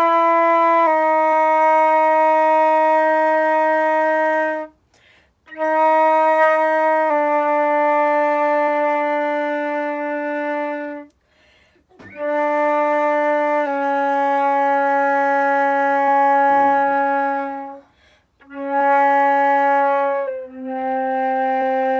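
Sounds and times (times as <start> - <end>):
flute playing long tones: 0.0 - 4.8, 5.4 - 11.2, 11.9 - 21.9
player breathing: 4.9 - 5.4, 11.2 - 11.9, 17.8 - 18.4.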